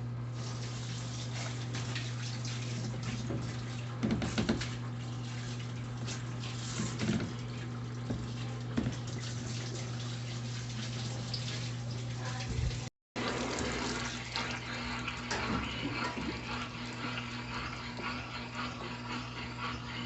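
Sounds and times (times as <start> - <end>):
water sloshing in washing machine: 0.0 - 20.0.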